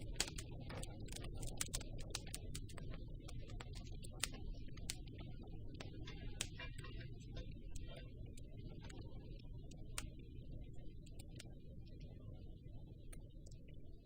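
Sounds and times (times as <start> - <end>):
wood crackling and popping: 0.0 - 10.2
low rumble of flames: 0.0 - 14.0.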